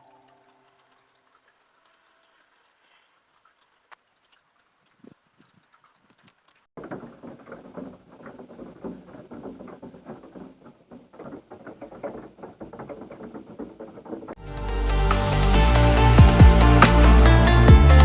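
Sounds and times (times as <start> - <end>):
electronic music: 14.4 - 18.0.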